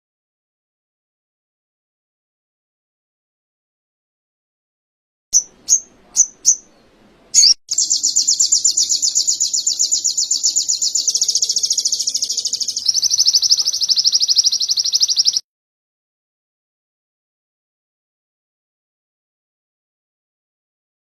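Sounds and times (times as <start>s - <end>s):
songbird chirps and trill: 5.4s - 15.4s.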